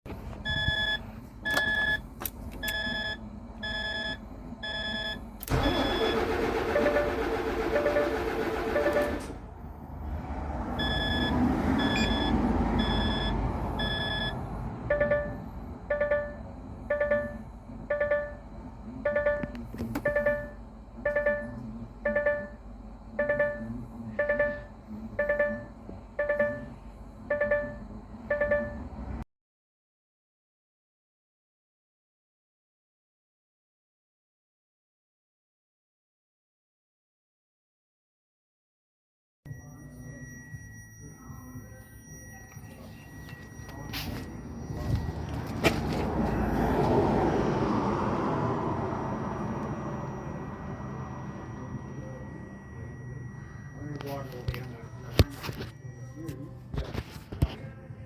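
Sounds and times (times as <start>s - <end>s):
cab warning beeper: 0.4s - 9.4s, 10.8s - 29.2s, 39.5s - 57.7s
starter motor cranking diesel engine: 4.7s - 9.5s
steady low hum: 8.7s - 29.2s, 48.6s - 58.0s
electronic chime: 39.5s - 46.8s, 48.8s - 56.8s.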